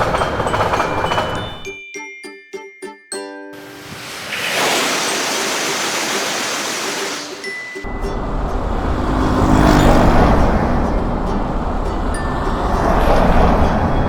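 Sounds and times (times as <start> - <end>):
train whooshing past: 0.0 - 1.7, 3.6 - 14.0
deep vehicle rumble: 7.9 - 14.0.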